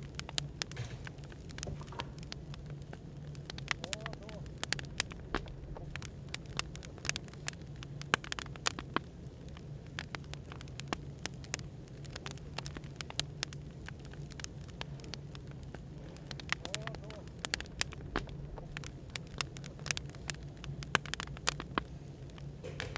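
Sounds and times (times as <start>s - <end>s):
firewood crackling: 0.0s - 22.9s.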